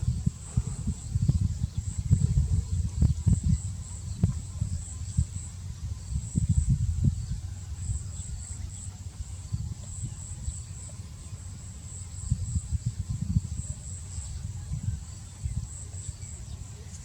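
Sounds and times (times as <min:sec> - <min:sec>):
low thumps and rumbling: 0:00.0 - 0:08.5
insects chirring: 0:00.0 - 0:17.0.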